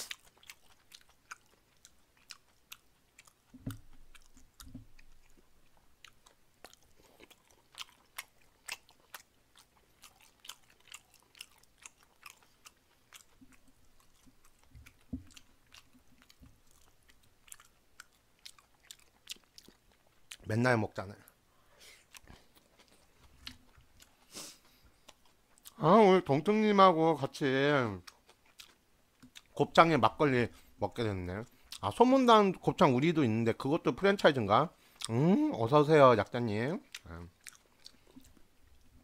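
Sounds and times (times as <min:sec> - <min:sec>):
chewing with mouth clicks: 0:00.0 - 0:20.5, 0:21.2 - 0:25.8, 0:28.0 - 0:29.6, 0:31.4 - 0:31.9, 0:34.9 - 0:35.3, 0:36.8 - 0:39.0
soft low thumps: 0:04.6 - 0:05.0.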